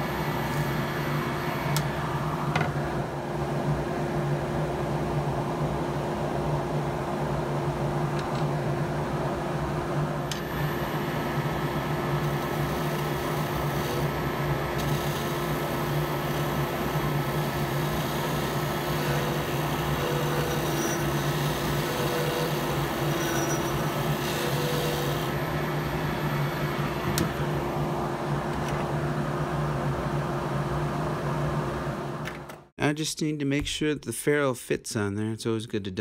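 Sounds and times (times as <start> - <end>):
wood lathe motor hum: 10.4 - 27.8
tool cutting spinning wood: 12.2 - 25.4.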